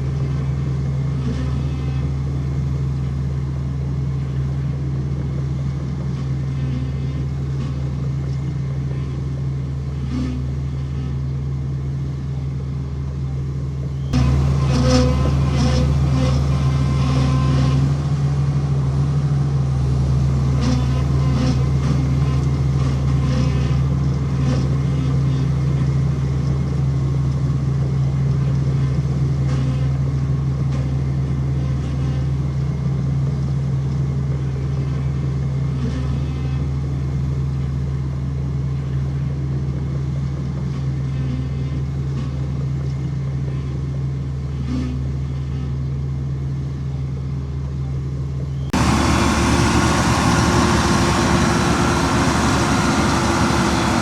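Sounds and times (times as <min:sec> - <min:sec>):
diesel engine running: 0:14.2 - 0:25.9, 0:48.7 - 0:54.0.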